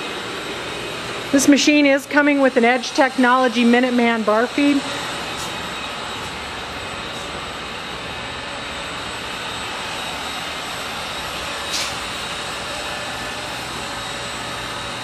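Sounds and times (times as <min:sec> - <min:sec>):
lathe machine humming: 0:00.0 - 0:15.0
machine shop noise: 0:00.0 - 0:15.0
brief hiss: 0:11.7 - 0:12.0.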